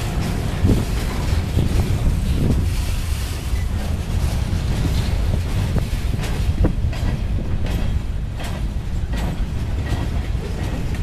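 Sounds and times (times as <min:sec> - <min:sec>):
freight train wheels rumbling: 0:00.0 - 0:11.0
clicks and clanks from cars: 0:04.8 - 0:11.0.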